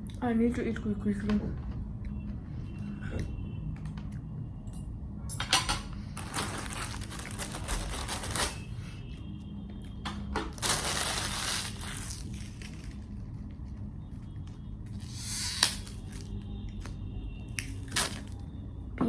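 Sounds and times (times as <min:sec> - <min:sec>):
low room hum: 0:00.0 - 0:19.0
dishes clattering and rustling: 0:05.3 - 0:08.6.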